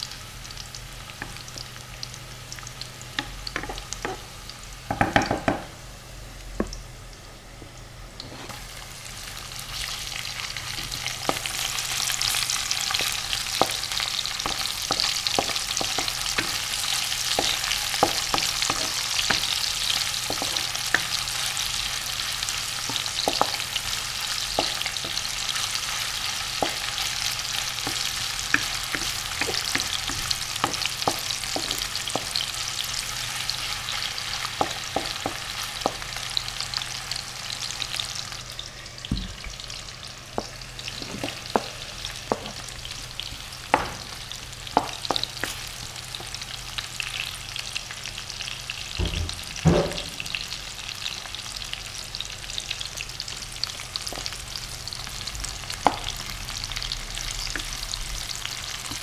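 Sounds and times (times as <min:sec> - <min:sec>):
garlic sizzling in hot oil: 0:00.0 - 0:06.9, 0:08.2 - 0:59.0
spatula scraping a wok: 0:08.2 - 0:08.7.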